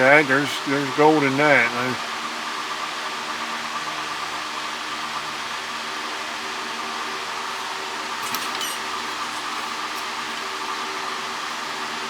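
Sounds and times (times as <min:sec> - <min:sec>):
faint tonal hum: 0:00.0 - 0:02.1
fan rushing hiss: 0:00.0 - 0:12.0.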